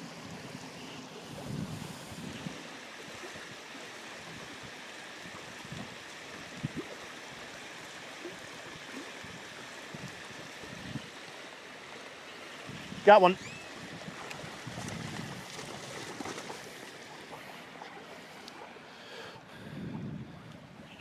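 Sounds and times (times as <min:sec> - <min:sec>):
wind buffeting microphone: 0:01.2 - 0:02.7, 0:12.6 - 0:16.7, 0:19.5 - 0:21.0.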